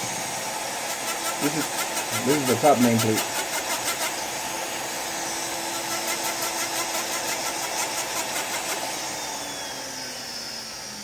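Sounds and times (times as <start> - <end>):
rotary tool motor: 0.0 - 11.0
sanding disc scratching metal: 0.8 - 4.9, 5.7 - 9.0.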